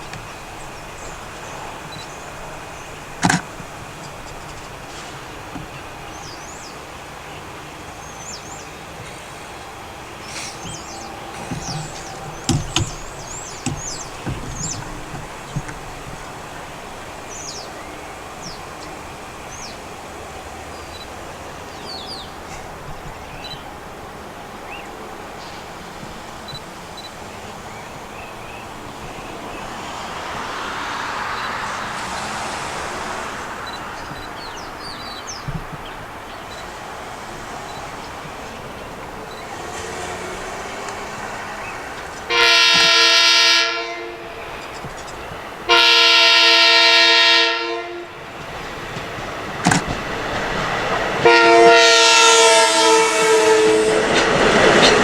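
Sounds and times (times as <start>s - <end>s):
small birds chirping: 0.0s - 42.3s, 44.3s - 45.6s
outdoor background noise: 0.0s - 55.0s
broad rush: 9.0s - 18.6s, 25.5s - 35.4s
sharp knocks: 10.4s - 16.4s.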